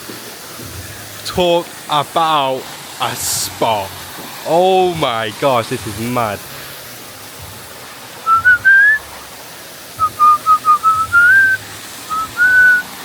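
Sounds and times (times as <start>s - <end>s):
waterfall rushing: 0.0s - 13.0s
person whistling a tune: 8.2s - 9.1s, 10.0s - 12.8s.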